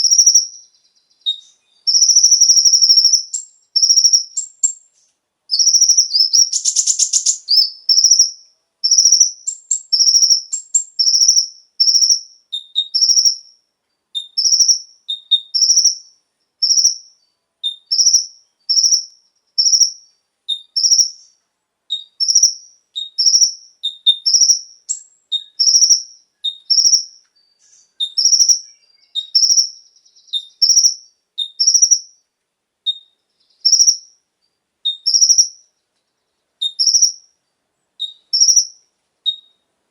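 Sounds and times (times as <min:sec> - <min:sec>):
bird trill: 0:00.0 - 0:13.6, 0:14.2 - 0:32.3, 0:32.9 - 0:39.7
sunbird chirping: 0:00.0 - 0:39.7.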